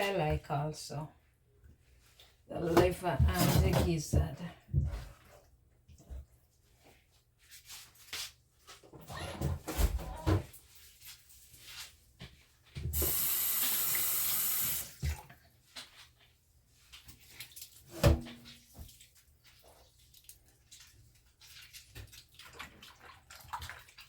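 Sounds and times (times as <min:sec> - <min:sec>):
tap water running: 0:12.8 - 0:15.3.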